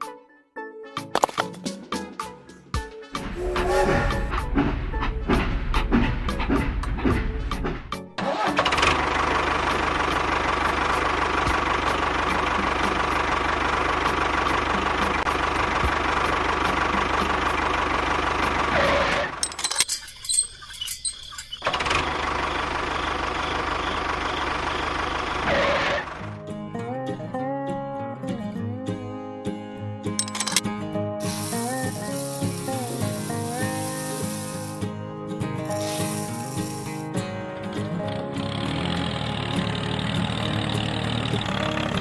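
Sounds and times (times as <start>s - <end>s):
small motor running: 31.2s - 34.8s, 35.7s - 37.0s.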